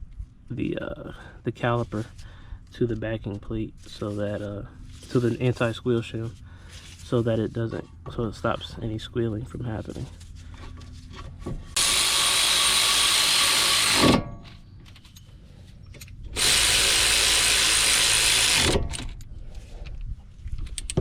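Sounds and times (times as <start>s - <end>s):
cordless power tool running: 11.8s - 14.2s, 16.4s - 19.1s
handling sounds: 14.3s - 16.4s.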